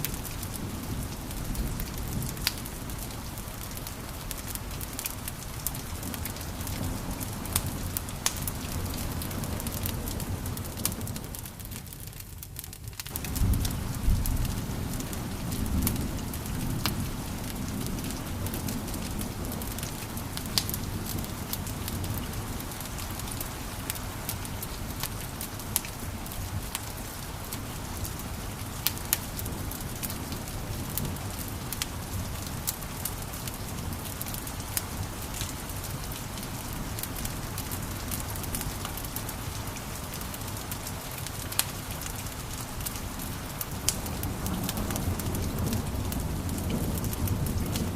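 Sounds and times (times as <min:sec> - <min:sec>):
wood fire crackling: 0:00.0 - 0:47.9.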